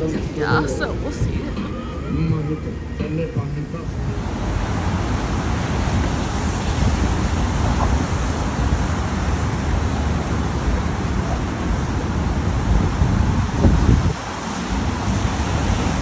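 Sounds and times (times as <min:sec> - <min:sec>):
road traffic noise: 0:00.0 - 0:16.0
wind buffeting microphone: 0:00.0 - 0:16.0.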